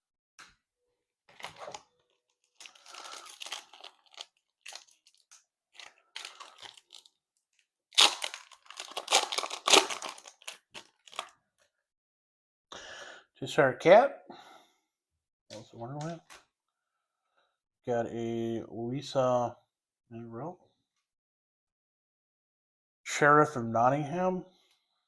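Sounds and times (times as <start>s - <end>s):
foil wrapper tearing and crinkling: 1.3s - 7.2s, 7.9s - 11.4s.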